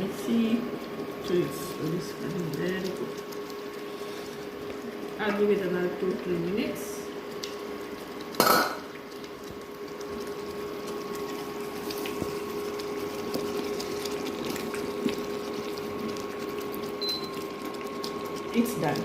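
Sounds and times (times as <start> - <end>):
gravy simmering and crackling in pan: 0.0 - 19.0.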